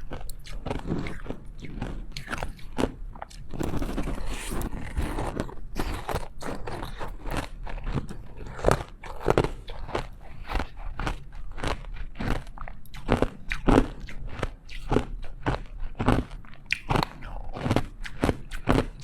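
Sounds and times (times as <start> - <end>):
chewing: 0.0 - 19.0
ice crunching: 3.5 - 10.1.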